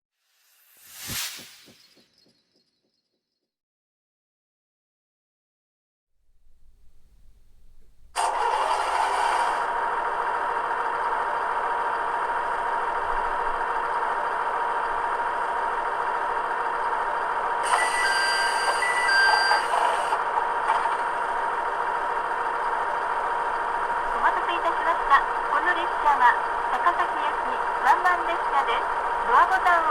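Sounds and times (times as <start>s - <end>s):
model diesel engine sound with whine: 6.4s - 29.9s
electronic beeps: 17.6s - 20.2s.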